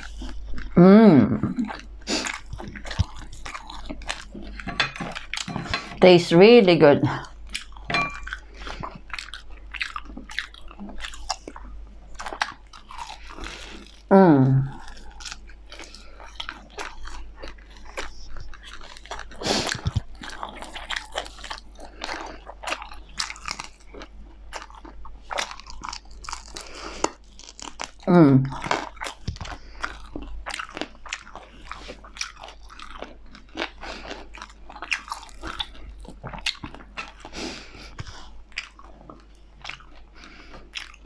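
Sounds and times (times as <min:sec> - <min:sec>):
chewing and biting chicken: 0:00.0 - 0:00.8, 0:01.6 - 0:06.0, 0:07.2 - 0:14.1, 0:14.7 - 0:41.0.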